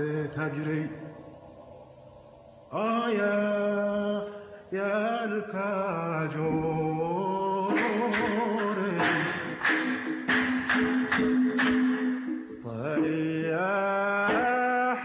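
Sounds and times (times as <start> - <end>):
man singing in chanting style: 0.0 - 1.1, 2.7 - 9.6, 12.6 - 15.0.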